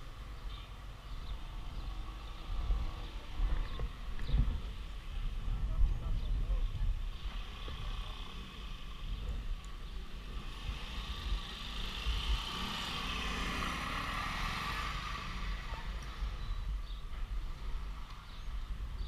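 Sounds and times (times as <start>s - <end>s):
wind buffeting microphone: 1.2s - 8.0s, 8.8s - 13.8s
motorcycle engine: 7.3s - 16.4s.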